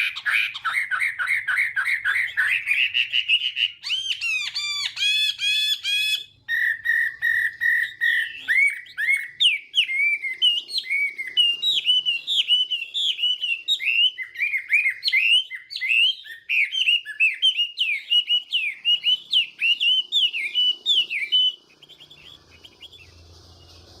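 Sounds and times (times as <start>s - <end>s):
bird singing whistled phrases: 0.0s - 24.0s
faint low hum: 18.2s - 24.0s.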